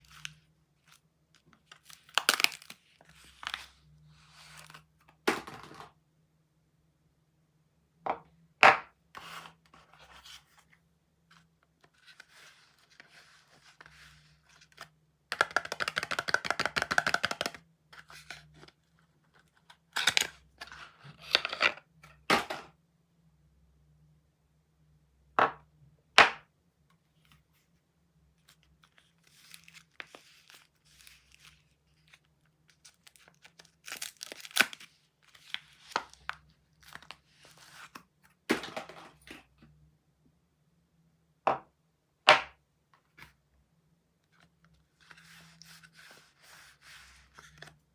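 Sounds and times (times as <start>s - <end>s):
packaging tearing and crinkling: 33.0s - 34.9s.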